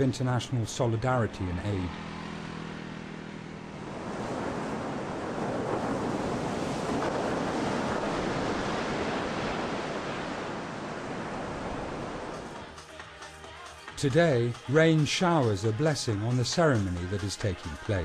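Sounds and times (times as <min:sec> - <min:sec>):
rushing water: 0:03.8 - 0:12.6.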